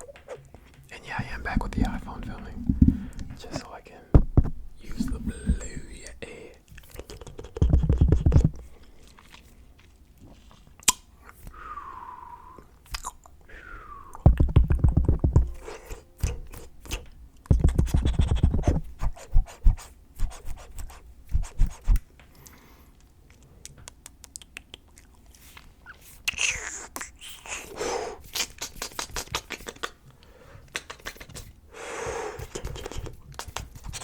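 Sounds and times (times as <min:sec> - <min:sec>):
wet mouth clicking and smacking: 0:06.7 - 0:10.0, 0:10.6 - 0:11.5, 0:12.8 - 0:13.4, 0:14.1 - 0:18.8, 0:23.0 - 0:27.6, 0:28.2 - 0:31.5, 0:32.4 - 0:34.0.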